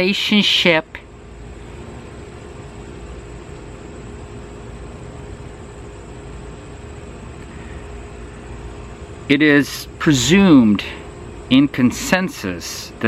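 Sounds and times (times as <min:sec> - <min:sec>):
faint steady hum: 0:00.0 - 0:13.0
even hiss: 0:05.5 - 0:13.0.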